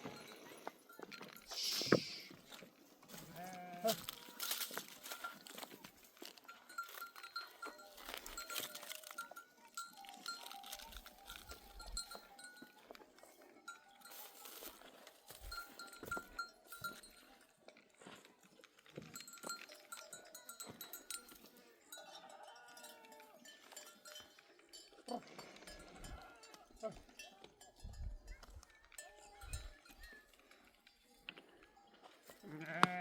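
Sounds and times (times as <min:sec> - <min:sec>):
sheep bells clinking: 0:00.0 - 0:33.0
sheep bleating: 0:03.1 - 0:04.2, 0:32.4 - 0:33.0.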